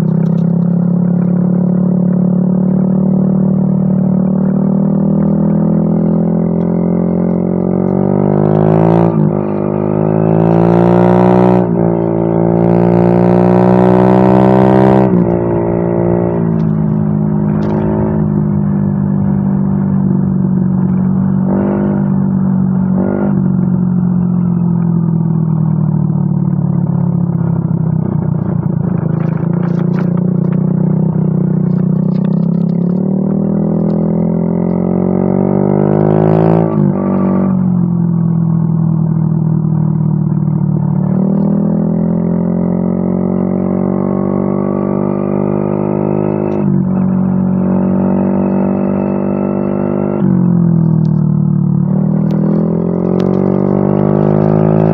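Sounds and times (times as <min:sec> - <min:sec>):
scooter engine revving: 0:45.7 - 0:54.9.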